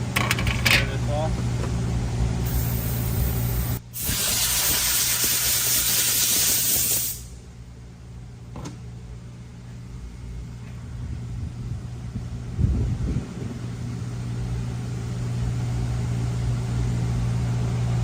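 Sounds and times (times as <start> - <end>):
pressurised spray hissing: 2.5 - 7.3.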